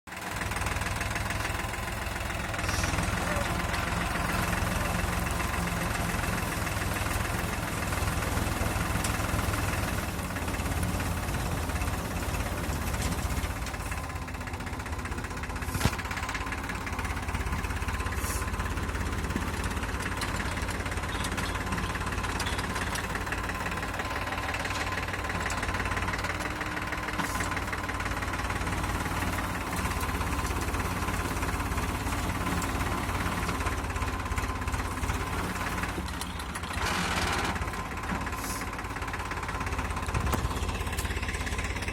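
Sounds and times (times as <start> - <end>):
tractor engine running: 0.1 - 41.9.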